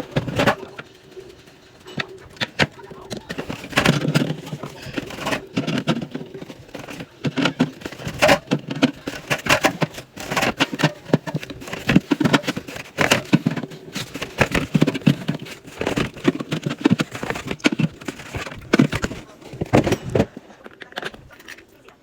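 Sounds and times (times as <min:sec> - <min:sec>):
cans and bottles clinking: 0:00.0 - 0:21.7.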